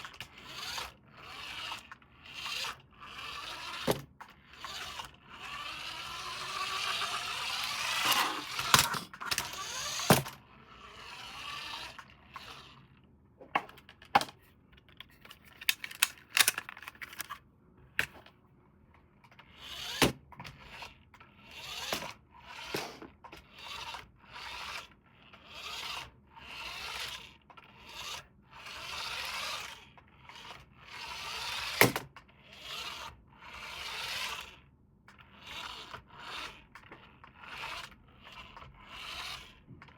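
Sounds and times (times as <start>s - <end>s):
plastic parts clicking: 7.7s - 10.4s, 13.5s - 17.4s, 18.0s - 18.3s
packaging rustling and scraping: 14.4s - 17.4s.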